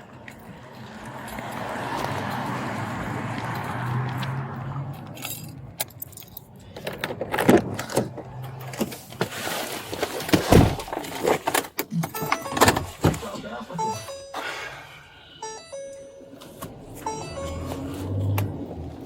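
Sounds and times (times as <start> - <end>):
traffic noise: 0.0 - 19.0
metallic clinks and knocks: 5.0 - 7.5.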